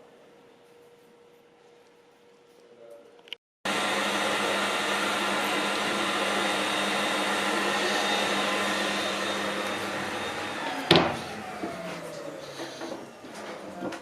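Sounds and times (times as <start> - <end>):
electric motor whirring: 3.7 - 13.8.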